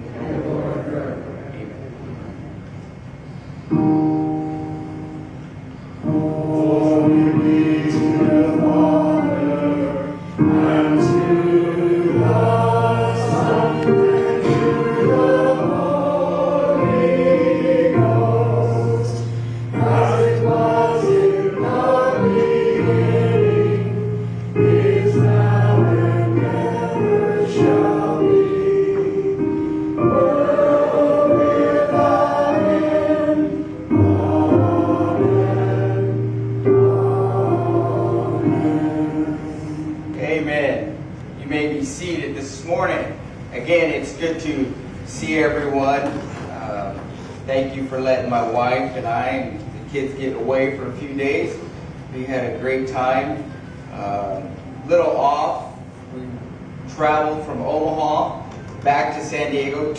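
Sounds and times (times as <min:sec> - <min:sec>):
choir singing a hymn: 0:00.0 - 0:01.7, 0:03.7 - 0:59.9
instrumental accompaniment: 0:03.7 - 0:40.2.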